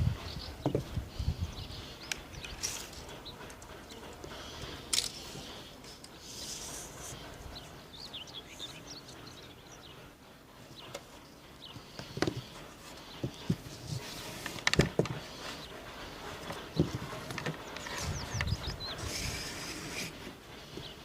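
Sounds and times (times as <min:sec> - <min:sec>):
small birds chirping: 0:00.0 - 0:21.0
wood knocking and clacking: 0:14.4 - 0:15.3, 0:16.4 - 0:18.8.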